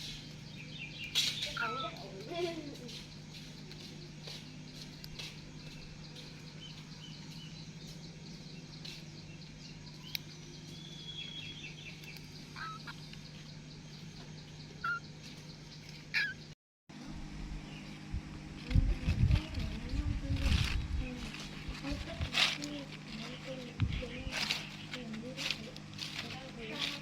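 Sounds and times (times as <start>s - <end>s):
low hum: 0.0s - 27.0s
high-pitched animal chirps: 1.5s - 2.0s, 12.6s - 13.0s, 14.8s - 15.0s, 16.1s - 16.4s.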